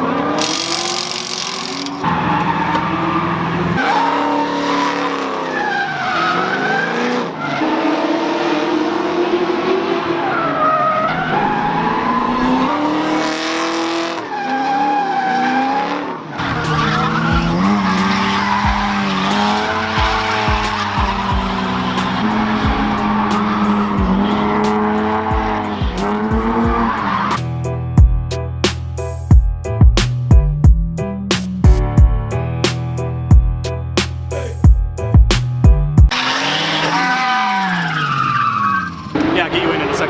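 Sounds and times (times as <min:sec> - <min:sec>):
car engine revving: 0:00.0 - 0:14.3, 0:15.4 - 0:27.4, 0:36.1 - 0:40.0
tyres squealing: 0:00.2 - 0:04.0, 0:16.4 - 0:24.9, 0:36.1 - 0:40.0.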